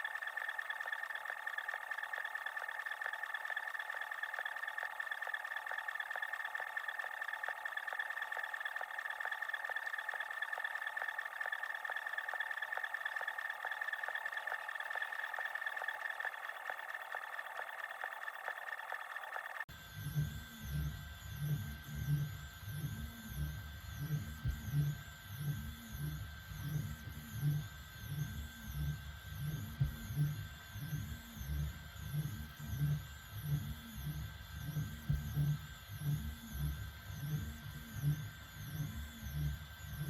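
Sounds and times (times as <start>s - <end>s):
steady printer hum: 0.0s - 19.7s.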